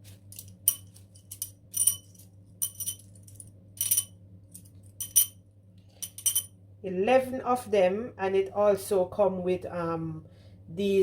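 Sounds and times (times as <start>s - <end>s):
woman speaking: 6.8s - 11.0s.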